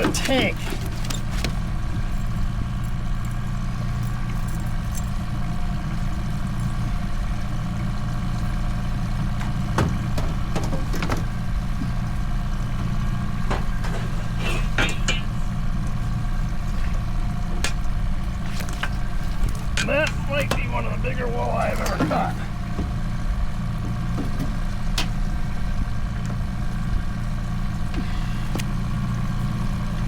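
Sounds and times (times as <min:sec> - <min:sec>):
gear clicks and knocks: 0:00.0 - 0:05.3, 0:17.5 - 0:20.7
boat motor humming: 0:00.0 - 0:30.0.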